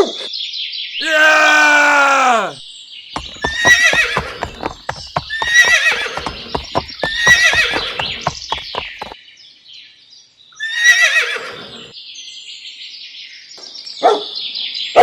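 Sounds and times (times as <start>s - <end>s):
hooves clip-clopping: 3.2s - 9.2s
horse whinnying: 3.2s - 9.2s, 10.6s - 11.9s.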